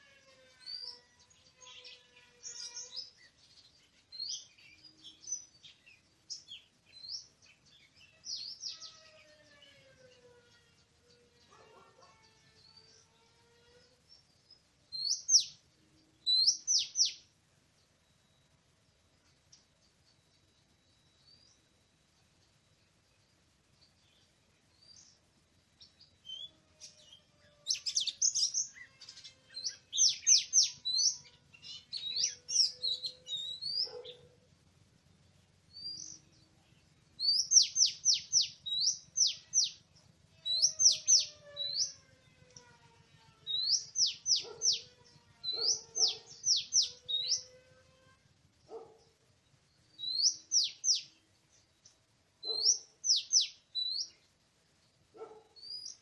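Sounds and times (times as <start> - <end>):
magpie-robin singing: 14.9 - 15.6, 16.2 - 17.3, 25.8 - 34.3, 35.7 - 42.0, 43.5 - 47.5, 49.7 - 51.2, 52.4 - 54.2, 55.2 - 56.0.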